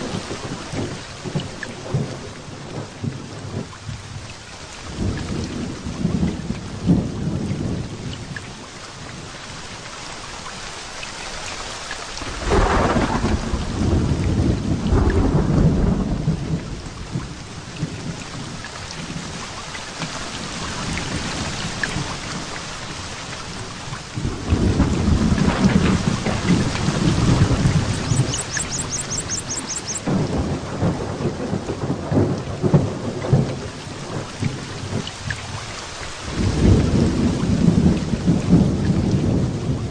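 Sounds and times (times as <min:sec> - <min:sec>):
heavy rain: 0:00.0 - 0:39.9
thunder rumbling: 0:12.2 - 0:18.2, 0:24.2 - 0:35.6, 0:36.2 - 0:39.9.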